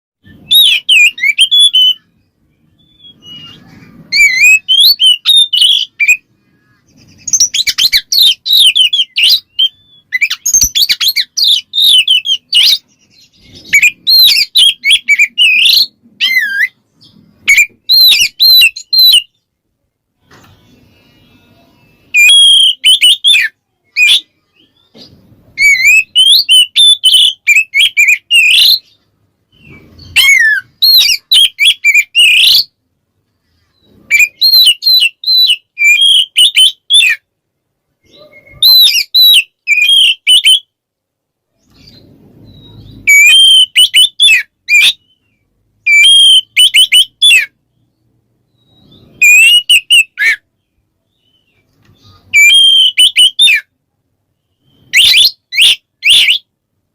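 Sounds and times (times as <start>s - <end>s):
bird singing whistled trills: 0.2s - 19.4s, 20.8s - 25.0s, 25.6s - 32.7s, 33.8s - 37.2s, 38.1s - 40.7s, 41.7s - 53.7s, 54.4s - 56.5s.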